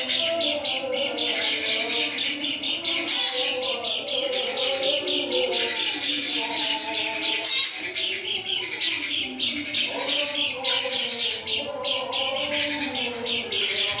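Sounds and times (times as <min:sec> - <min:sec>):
bird twittering song: 0:00.0 - 0:14.0.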